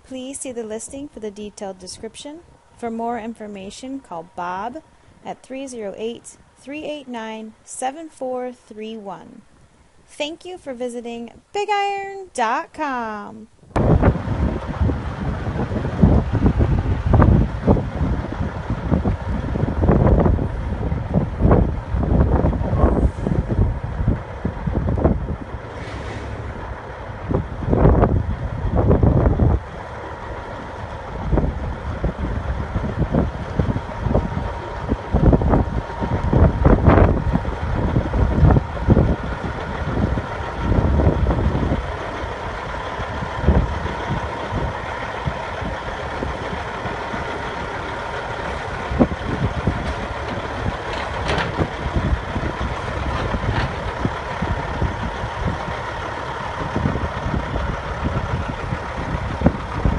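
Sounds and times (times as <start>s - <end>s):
wind buffeting microphone: 13.6s - 59.9s
diesel truck engine idling: 13.8s - 59.9s.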